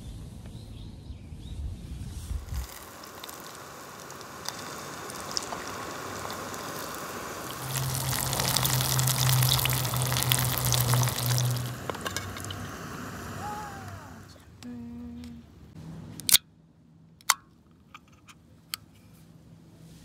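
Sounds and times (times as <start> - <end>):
low hum: 1.6 - 16.8
food sizzling and crackling: 2.3 - 14.2.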